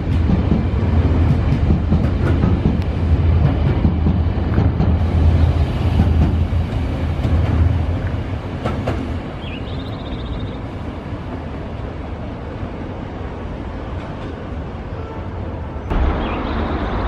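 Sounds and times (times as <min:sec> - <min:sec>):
electric train rumbling past: 0:00.0 - 0:17.0.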